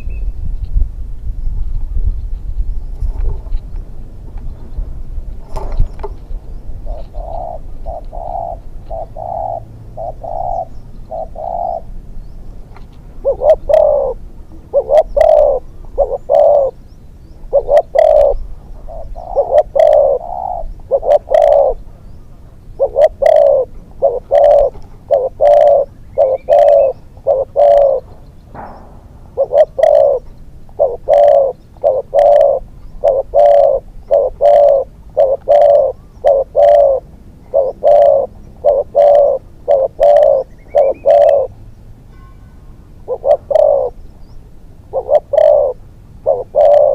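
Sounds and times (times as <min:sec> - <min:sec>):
dove cooing: 0:06.8 - 0:12.0, 0:13.2 - 0:16.8, 0:17.4 - 0:41.6, 0:43.0 - 0:44.0, 0:44.9 - 0:46.9.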